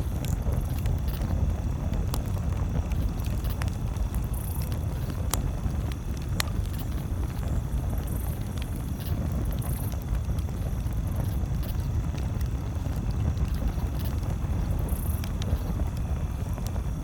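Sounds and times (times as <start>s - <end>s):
burning wood popping: 0.0s - 17.0s
campfire crackling: 0.0s - 17.0s
low fire rumble: 0.0s - 17.0s.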